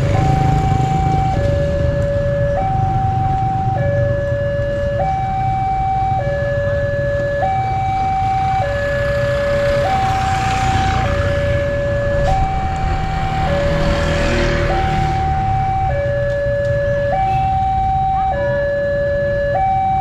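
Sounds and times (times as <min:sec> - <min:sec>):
level-crossing alarm alternating tones: 0:00.0 - 0:20.0
low rumble: 0:10.9 - 0:16.3.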